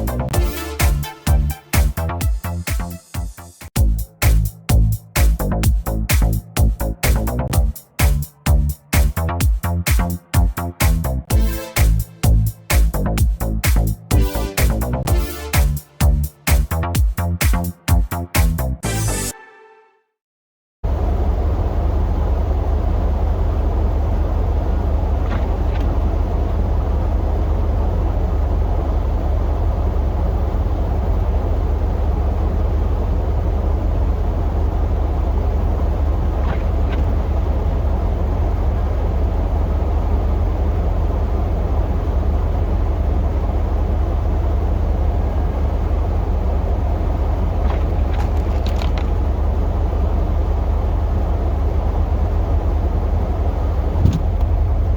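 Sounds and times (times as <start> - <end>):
pickup truck engine rumble: 0.0 - 3.1, 20.8 - 54.9.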